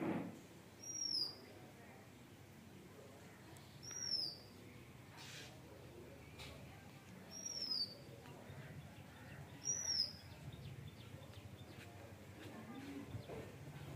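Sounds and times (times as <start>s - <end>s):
faint outdoor background noise: 0.0s - 13.9s
bird calling: 3.8s - 4.5s, 7.3s - 8.1s, 9.1s - 10.8s.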